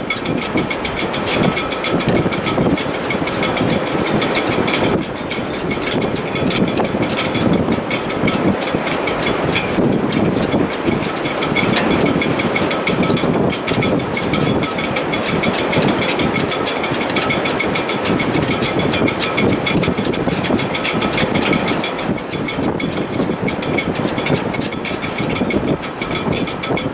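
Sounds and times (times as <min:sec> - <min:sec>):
wind rushing in rigging: 0:00.3 - 0:26.8
fast even rattle: 0:04.4 - 0:17.8.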